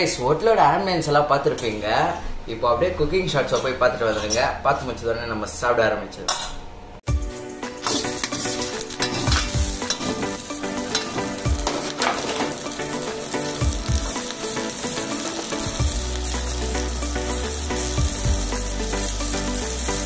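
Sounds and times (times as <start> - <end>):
prawns sizzling in hot oil: 7.5 - 20.0
metal ladle scraping wok: 7.7 - 18.0.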